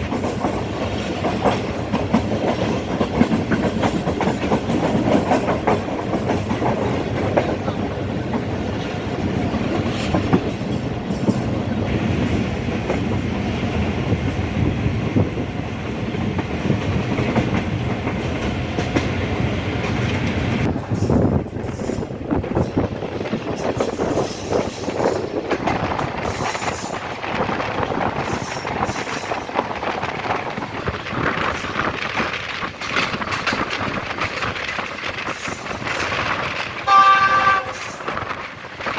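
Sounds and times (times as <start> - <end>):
train rumble: 0.0 - 38.9
train wheels clattering over rail joints: 0.0 - 38.9.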